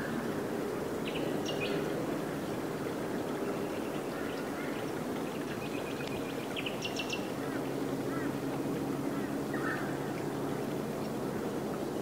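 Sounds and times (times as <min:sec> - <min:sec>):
wild birds calling: 0:03.4 - 0:08.4, 0:09.1 - 0:10.1.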